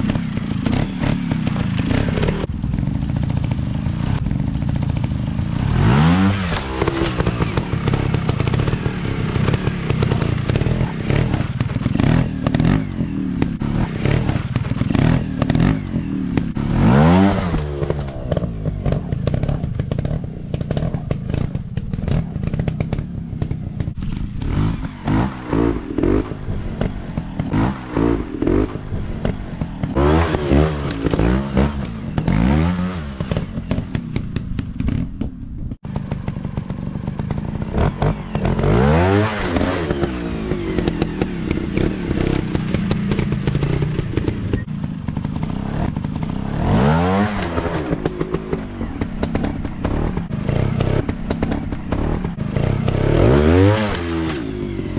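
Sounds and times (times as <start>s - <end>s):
dirt bike engines revving: 0.0s - 54.9s.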